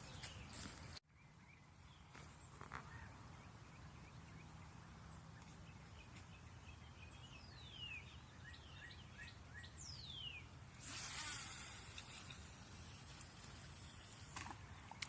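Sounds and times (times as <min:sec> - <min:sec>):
small high bird chirps: 0:05.2 - 0:15.0.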